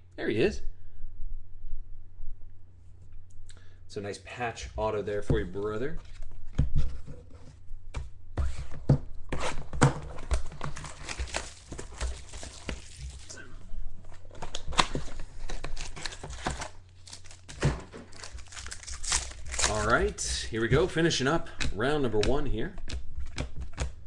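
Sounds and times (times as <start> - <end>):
card wrappers crinkling and tearing: 10.1 - 13.5, 14.2 - 20.3.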